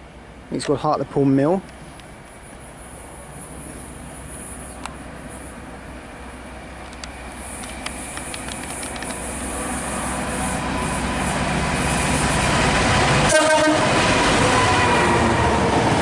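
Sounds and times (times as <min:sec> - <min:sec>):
diesel freight train approaching: 0:01.6 - 0:16.0
train horn blast: 0:13.2 - 0:15.7.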